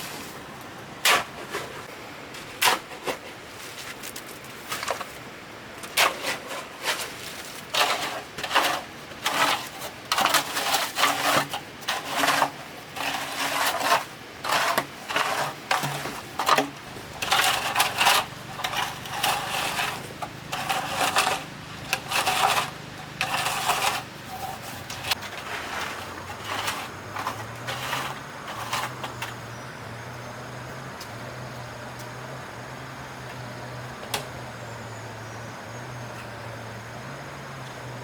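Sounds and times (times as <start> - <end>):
shovel scraping sand and cement: 0.0 - 5.2, 5.8 - 29.6.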